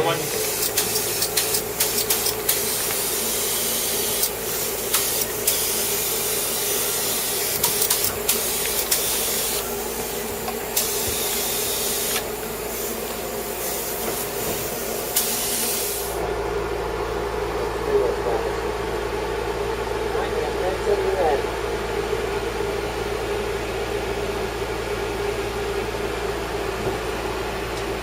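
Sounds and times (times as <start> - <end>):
steady mechanical hum: 0.0 - 28.0
paint spray gun hissing: 0.2 - 16.2.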